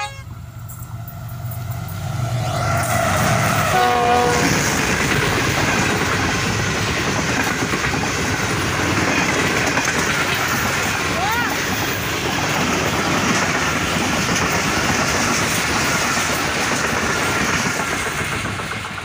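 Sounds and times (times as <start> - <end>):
train horn blast: 0.0 - 0.4, 3.6 - 4.7
train passing at speed: 0.0 - 19.0.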